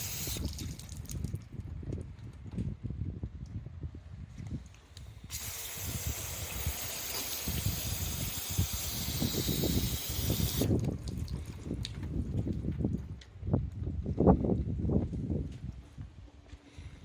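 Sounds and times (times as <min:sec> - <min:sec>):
water spraying from hose nozzle: 0:00.0 - 0:01.2, 0:05.3 - 0:10.9
wind rumble on microphone: 0:00.0 - 0:17.0.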